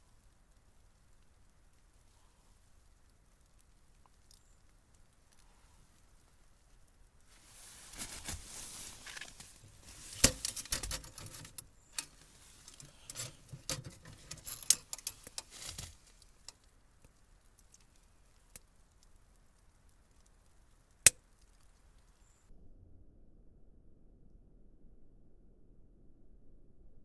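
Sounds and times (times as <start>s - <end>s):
objects rustling and clicking: 7.2s - 19.2s.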